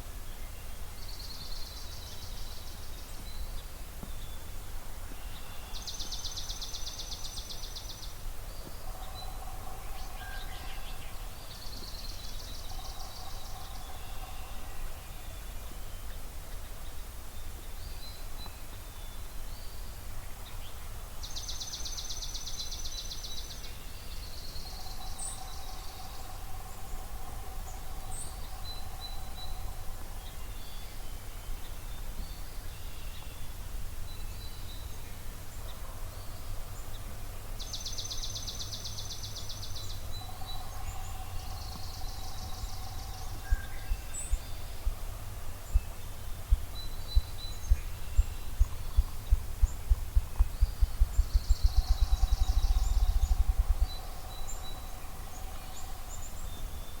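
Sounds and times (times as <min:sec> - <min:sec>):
low rumble: 0:40.1 - 0:56.9
faint bird chirps: 0:45.6 - 0:57.0.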